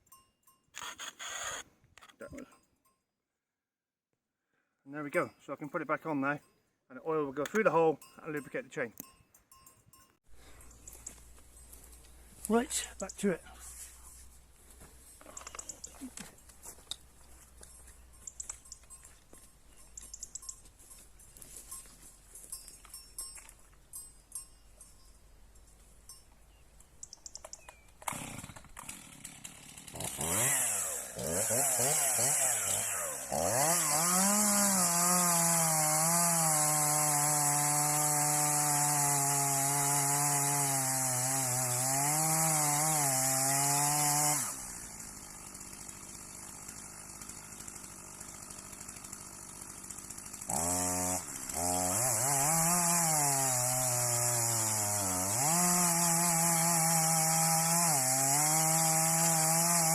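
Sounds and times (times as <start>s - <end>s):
chainsaw revving and cutting: 0.8s - 1.7s, 28.0s - 59.9s.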